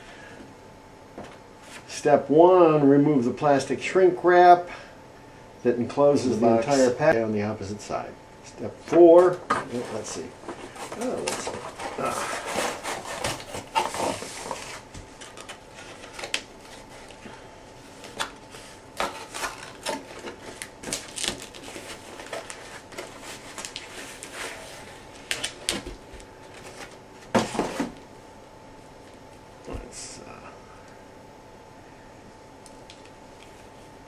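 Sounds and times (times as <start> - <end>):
plastic and cardboard rustling: 9.0 - 28.0.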